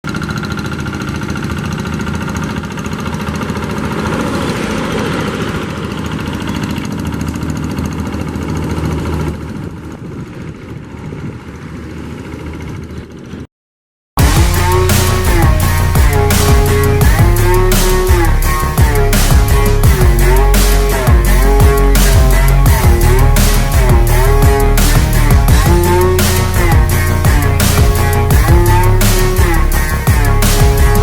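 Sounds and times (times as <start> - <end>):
tractor diesel engine running: 0.0 - 13.4, 14.2 - 31.0
loud music: 14.2 - 31.0.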